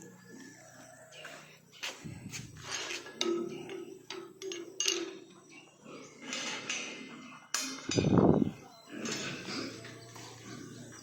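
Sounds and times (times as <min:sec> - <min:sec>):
pig calls: 0:03.2 - 0:11.0
knocks and clanks: 0:07.6 - 0:09.7.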